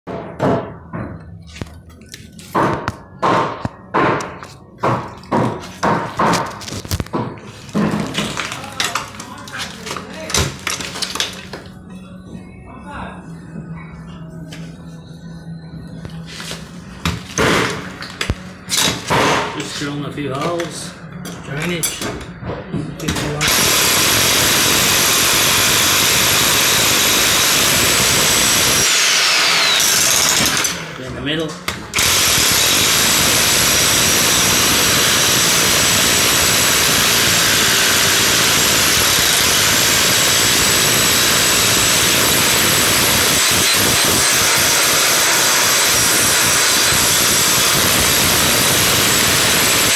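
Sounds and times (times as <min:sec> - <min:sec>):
heavy blows breaking concrete: 0:02.6 - 0:11.6
power drill running: 0:23.4 - 0:31.0, 0:31.9 - 0:49.9.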